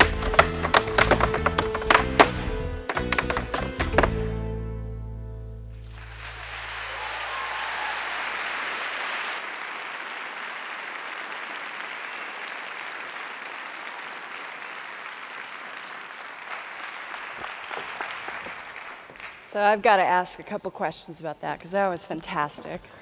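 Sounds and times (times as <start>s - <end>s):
audience applauding and cheering: 5.8s - 19.5s.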